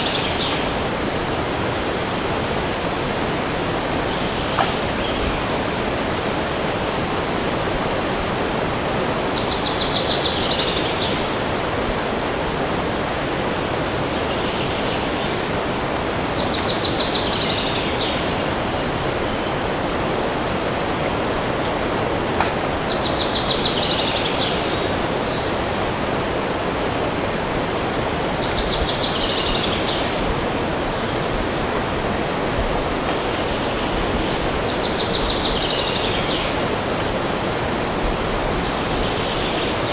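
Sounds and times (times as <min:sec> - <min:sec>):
steady rushing noise: 0:00.0 - 0:39.9.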